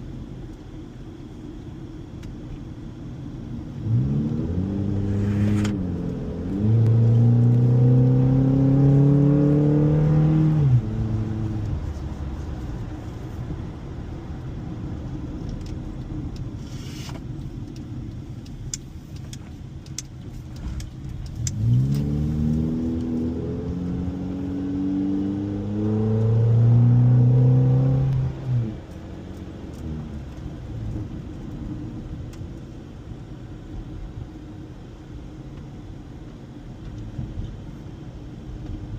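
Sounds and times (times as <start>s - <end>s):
car engine accelerating: 3.5s - 16.6s, 19.8s - 32.6s.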